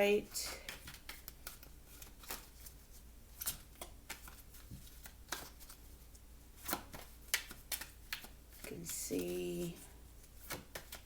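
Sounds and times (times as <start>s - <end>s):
cards clicking and sliding: 0.6s - 2.8s, 3.4s - 5.8s, 6.6s - 9.4s, 10.4s - 11.0s.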